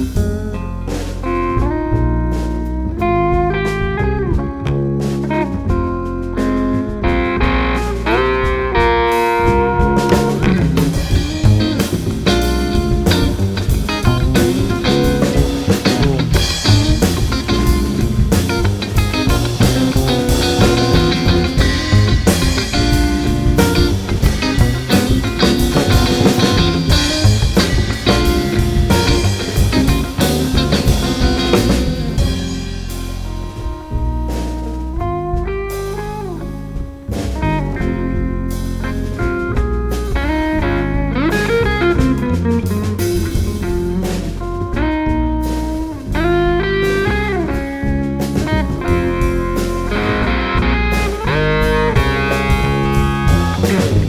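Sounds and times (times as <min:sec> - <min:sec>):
drum kit beat: 0:00.0 - 0:54.0
guitar playing: 0:00.0 - 0:54.0.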